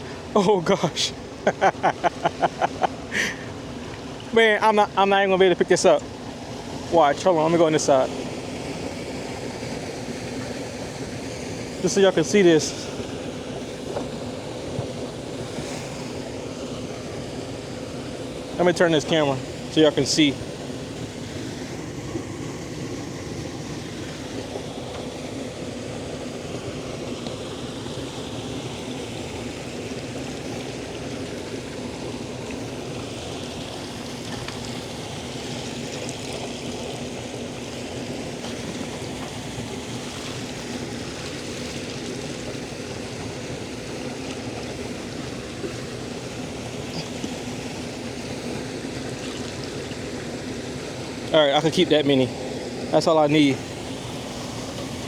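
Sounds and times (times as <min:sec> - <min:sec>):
water trickling and splashing: 0:00.0 - 0:55.0.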